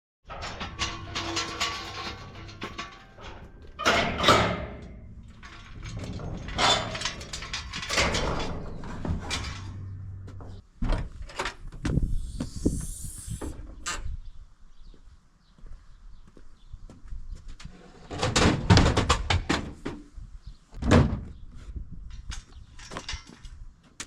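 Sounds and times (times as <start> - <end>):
brief hiss: 12.0 - 13.6.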